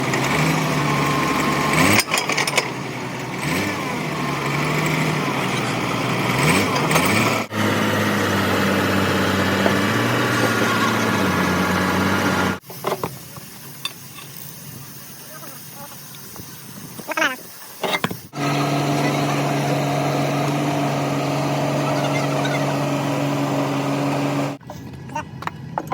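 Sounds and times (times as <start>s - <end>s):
heavy diesel engine running: 0.0s - 12.6s, 18.3s - 25.5s.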